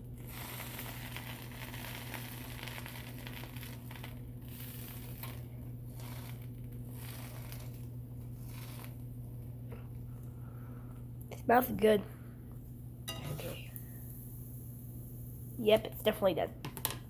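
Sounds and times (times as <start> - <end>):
sandwich sizzling in a frying pan: 0.0 - 9.7, 13.8 - 15.9.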